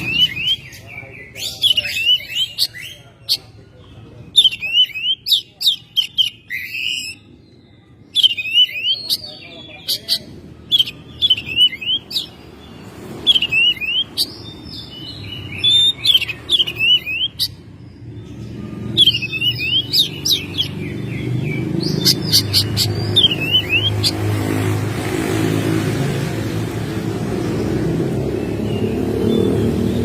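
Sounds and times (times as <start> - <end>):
bird singing high whistles: 8.1 - 9.3, 19.0 - 20.6.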